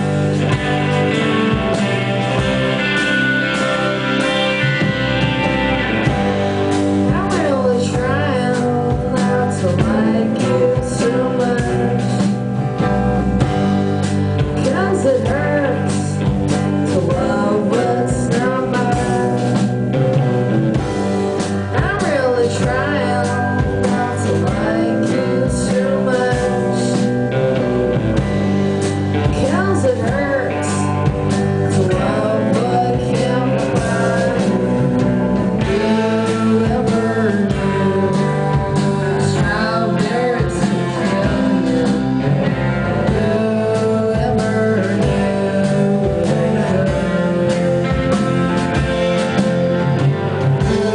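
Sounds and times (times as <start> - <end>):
live rock band playing: 0.0 - 50.9
person singing: 7.0 - 13.5, 14.4 - 20.6, 21.6 - 27.7, 29.0 - 50.9.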